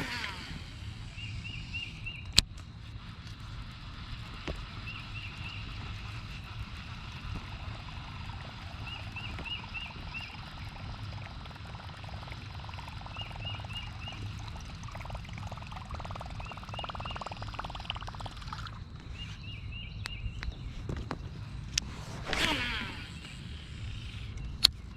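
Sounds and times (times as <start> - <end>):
rapid ticking: 0.0 - 19.0
bird chirping: 0.0 - 24.9
wind and water rumble: 0.0 - 24.9.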